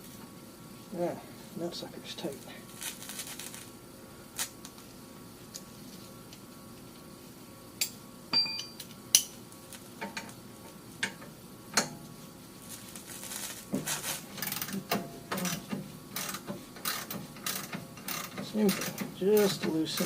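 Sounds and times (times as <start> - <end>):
hand tools clicking on metal: 14.4 - 20.0.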